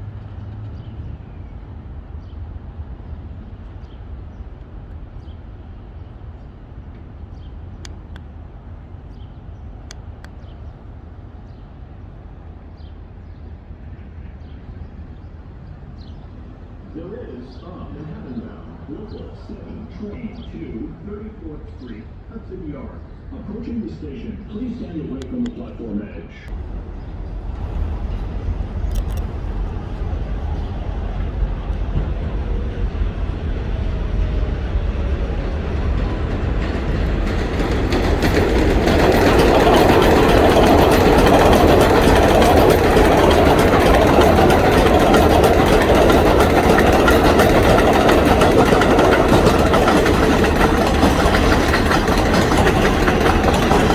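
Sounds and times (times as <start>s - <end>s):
faint train whine: 0.0s - 53.9s
low city rumble: 0.0s - 53.9s
sharp clicks: 28.8s - 29.3s.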